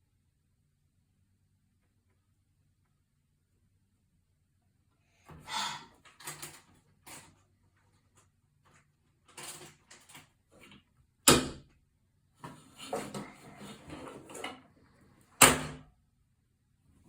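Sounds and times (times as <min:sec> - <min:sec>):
objects rustling and clattering: 0:05.3 - 0:10.9, 0:12.4 - 0:15.4.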